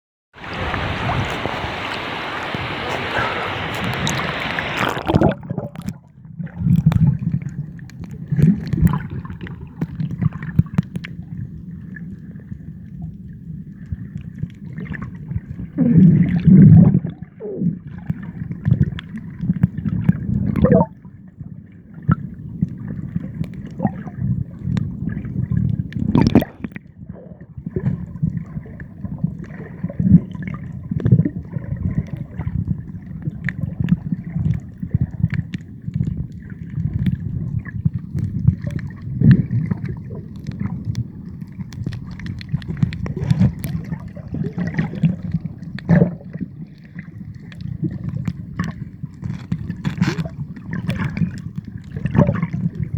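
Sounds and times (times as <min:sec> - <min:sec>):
water gurgling and sloshing: 0:00.4 - 0:52.9
clicks and pops: 0:01.3 - 0:06.0, 0:26.0 - 0:26.7.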